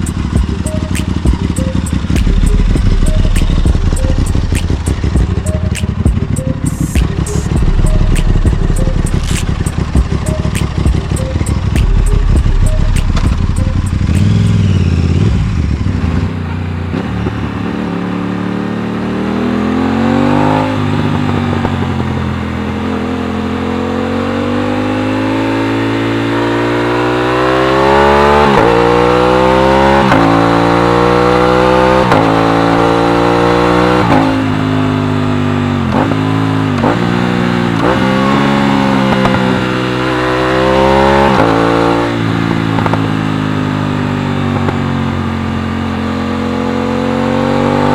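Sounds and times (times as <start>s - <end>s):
motorcycle engine shifting gears: 0.0s - 47.9s.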